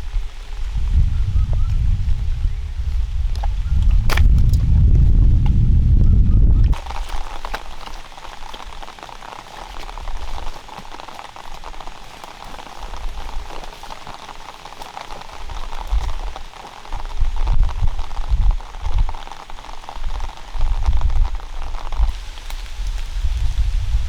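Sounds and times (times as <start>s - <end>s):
rain pattering on a surface: 0.0s - 1.1s, 6.7s - 24.0s
low rumbles: 0.7s - 6.9s.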